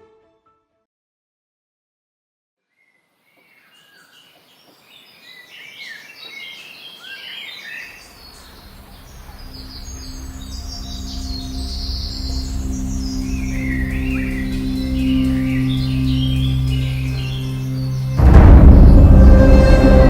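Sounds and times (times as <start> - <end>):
birds chirping: 2.8 - 20.0
ambient music drone: 8.7 - 20.0.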